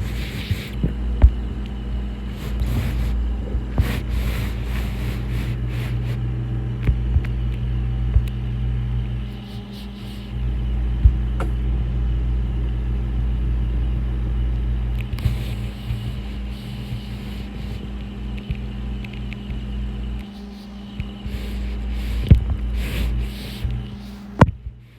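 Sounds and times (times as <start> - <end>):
low motor hum: 0.0 - 24.9
light clicks: 17.8 - 21.4.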